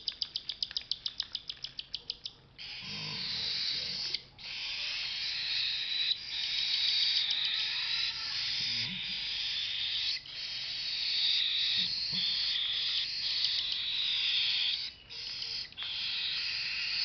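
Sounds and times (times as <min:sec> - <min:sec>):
cockatiel chicks begging calls: 0:00.1 - 0:17.0.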